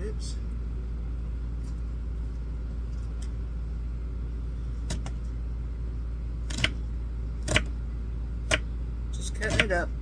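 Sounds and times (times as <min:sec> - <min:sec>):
low hum: 0:00.0 - 0:10.0
knife chopping on cutting board: 0:06.5 - 0:06.8, 0:07.4 - 0:07.7, 0:08.4 - 0:08.7, 0:09.4 - 0:09.9.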